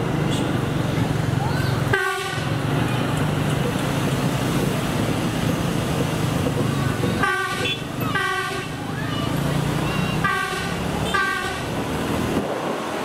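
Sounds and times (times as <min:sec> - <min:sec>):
engine and traffic drone: 0:00.0 - 0:13.0
train horn blast: 0:01.9 - 0:02.6, 0:07.2 - 0:08.8, 0:10.2 - 0:11.8.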